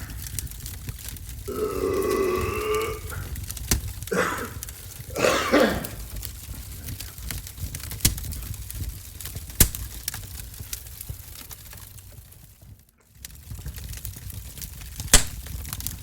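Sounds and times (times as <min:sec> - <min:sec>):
man burping: 0:01.5 - 0:03.4, 0:04.1 - 0:06.1
throat clearing: 0:01.5 - 0:03.4, 0:04.1 - 0:06.2.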